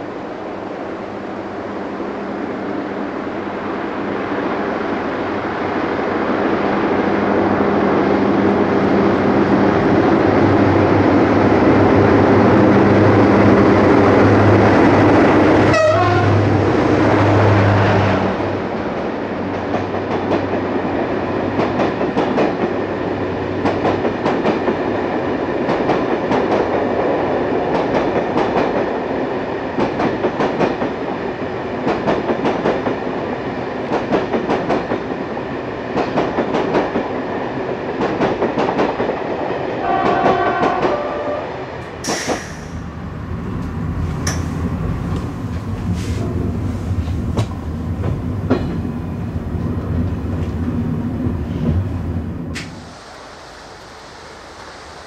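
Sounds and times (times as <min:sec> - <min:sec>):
locomotive engine hum: 0:39.8 - 0:53.0
train wheels clacking: 0:41.8 - 0:42.9, 0:43.5 - 0:49.1.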